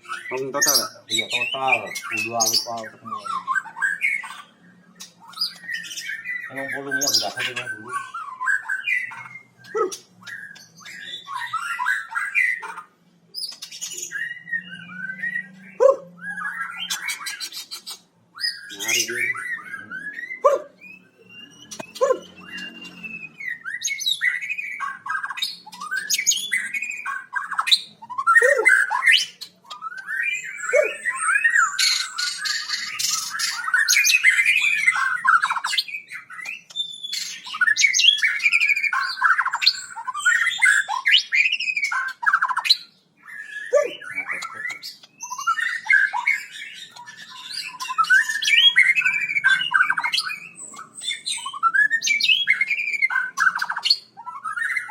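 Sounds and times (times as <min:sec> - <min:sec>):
bird squawking and chattering: 0:00.0 - 0:54.9.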